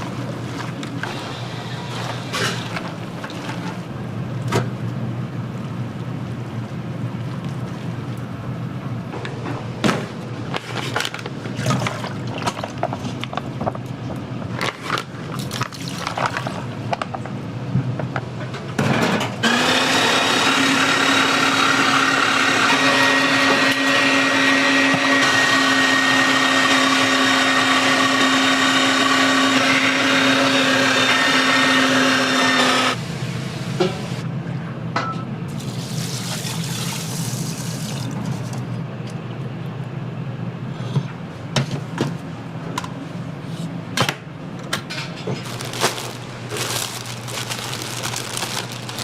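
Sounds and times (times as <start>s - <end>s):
blender motor running: 19.4s - 33.0s.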